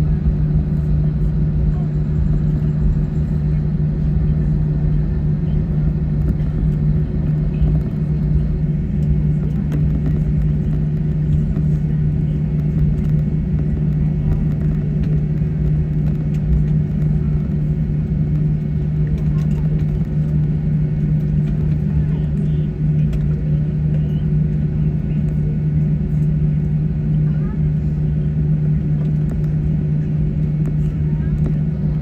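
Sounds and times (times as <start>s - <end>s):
air conditioning: 0.0s - 32.0s
jet engines idling: 0.0s - 32.0s.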